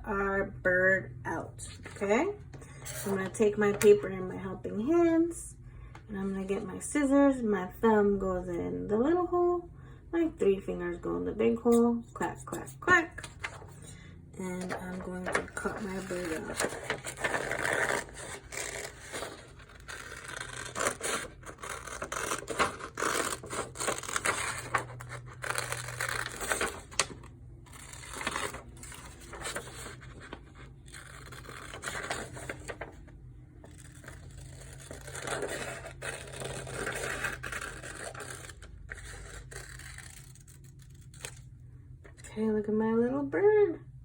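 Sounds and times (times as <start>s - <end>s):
paper rustling: 14.6s - 41.4s
scissors snipping paper: 15.0s - 30.3s, 33.7s - 41.4s.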